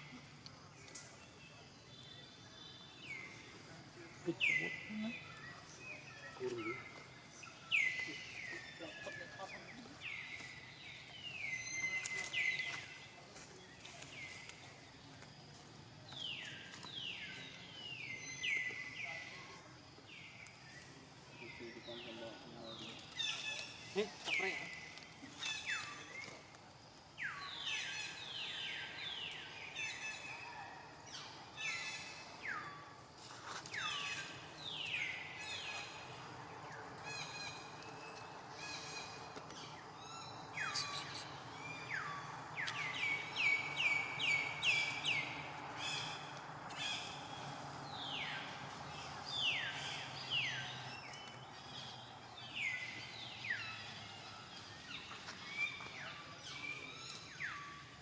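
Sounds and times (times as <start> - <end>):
background hiss: 0.0 - 58.0
birds calling: 2.7 - 13.2, 27.2 - 58.0.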